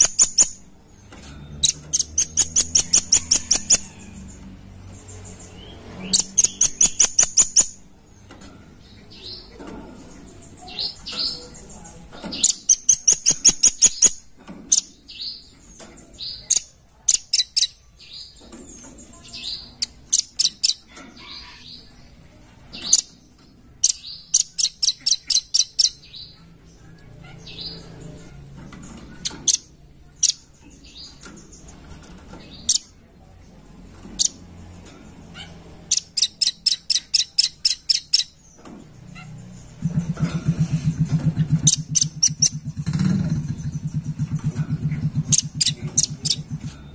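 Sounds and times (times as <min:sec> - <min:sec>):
nuthatch calling: 0:00.0 - 0:00.6, 0:05.5 - 0:07.8, 0:12.3 - 0:15.4, 0:39.2 - 0:46.6.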